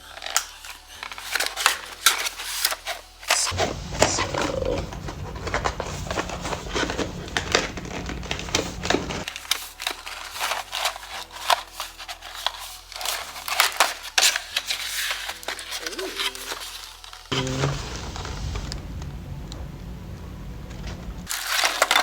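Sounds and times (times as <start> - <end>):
packaging crinkling and rustling: 0.0 - 19.1, 20.7 - 22.0
low rumble: 17.4 - 21.3.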